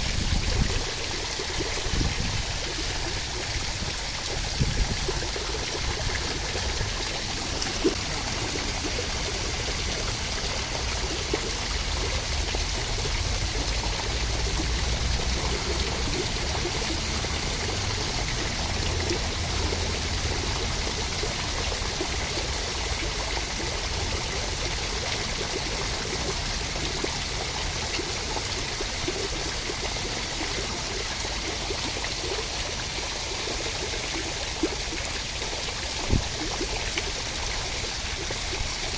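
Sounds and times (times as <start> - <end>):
water dripping: 0.0 - 38.9
steady rain: 0.9 - 38.9.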